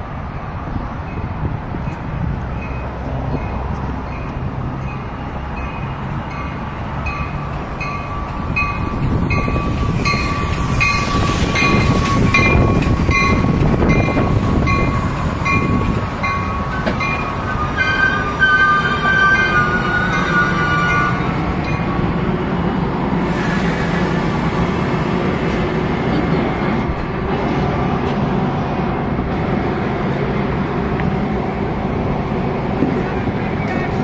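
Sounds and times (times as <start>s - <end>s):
train wheels rumbling: 0.0s - 34.0s
high metallic squeal: 17.5s - 21.3s.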